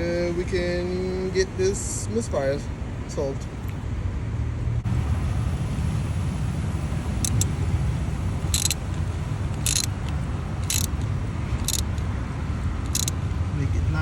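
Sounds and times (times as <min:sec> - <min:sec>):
steady low rumble: 0:00.0 - 0:14.0
ratchet clicks: 0:07.2 - 0:07.5, 0:08.5 - 0:12.1, 0:12.8 - 0:13.2.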